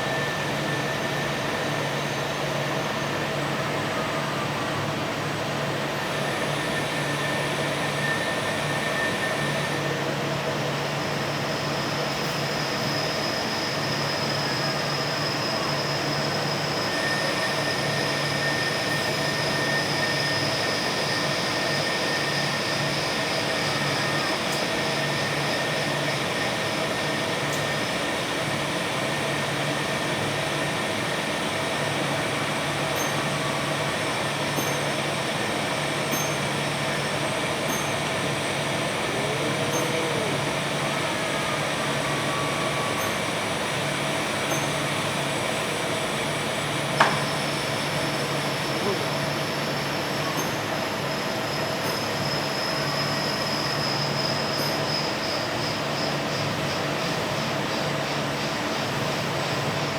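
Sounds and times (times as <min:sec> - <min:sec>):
machine whining tones: 0:06.0 - 0:57.8.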